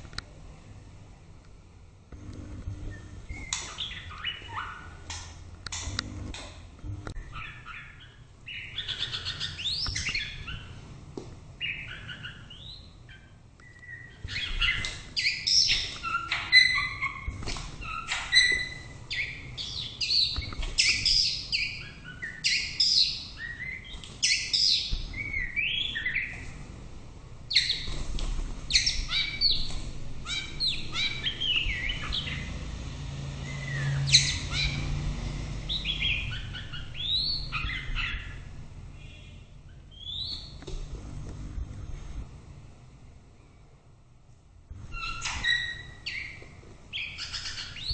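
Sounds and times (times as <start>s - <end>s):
bird singing fluty whistles and trills: 2.9s - 5.0s, 11.6s - 26.4s, 28.7s - 32.5s, 35.7s - 38.4s, 39.9s - 40.6s.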